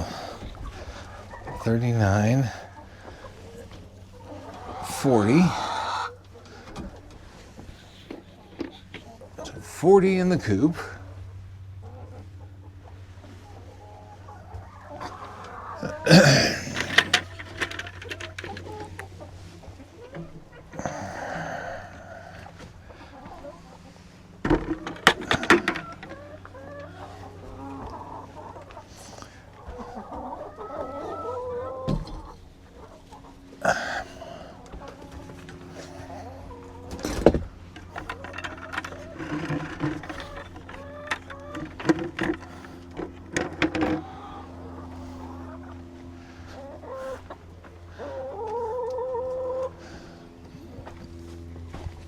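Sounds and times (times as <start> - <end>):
hen calling: 0.0 - 11.2
hens clucking: 0.0 - 52.0
steady low hum: 0.0 - 52.0.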